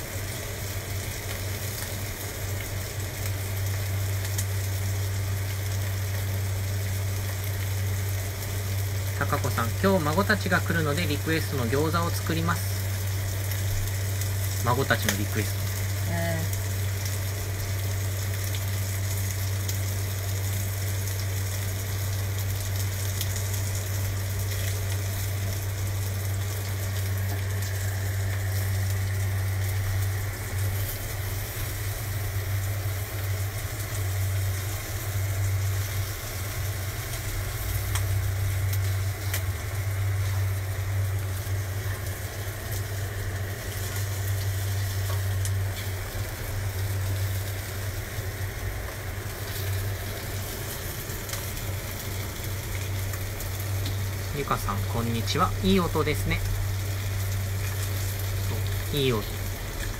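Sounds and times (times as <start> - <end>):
food sizzling in a frying pan: 0.0 - 59.9
low hum: 15.2 - 59.9.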